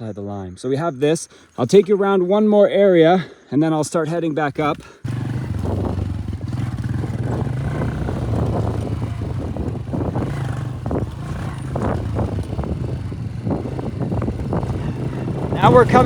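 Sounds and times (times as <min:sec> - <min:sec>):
vehicle engine running: 0:04.7 - 0:16.0.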